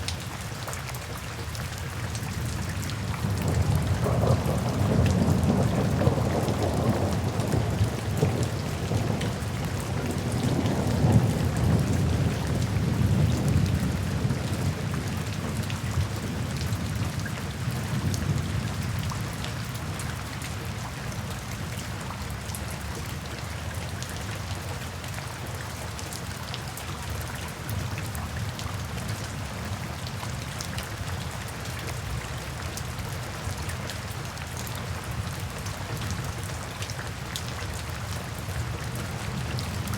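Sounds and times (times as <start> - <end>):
steady rain falling: 0.0 - 39.9
rolling thunder rumble: 3.2 - 17.0.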